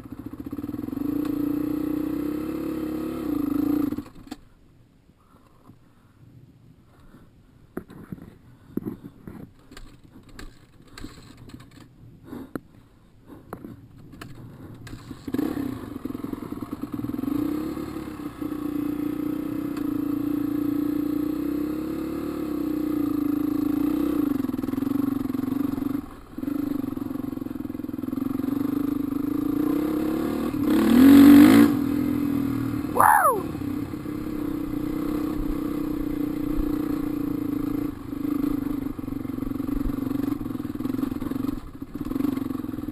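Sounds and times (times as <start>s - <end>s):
light clicks and clatter: 7.7s - 12.7s, 13.5s - 15.3s.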